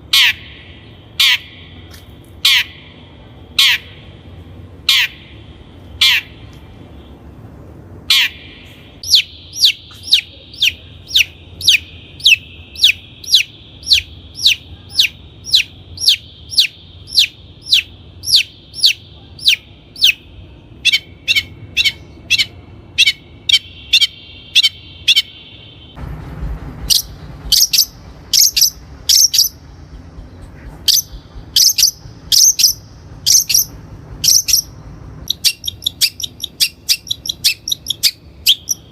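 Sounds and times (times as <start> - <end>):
shrike calling harsh notes: 8.0 - 26.0, 30.6 - 38.9.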